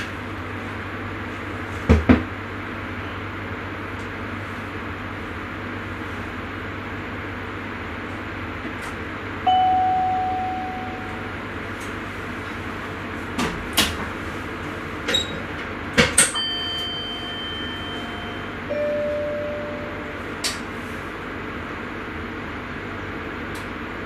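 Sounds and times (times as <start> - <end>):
train cab running noise: 0.0 - 24.0
chime-like ding: 9.5 - 11.4, 16.3 - 20.5
steady chime tone: 9.5 - 11.5, 16.4 - 20.4.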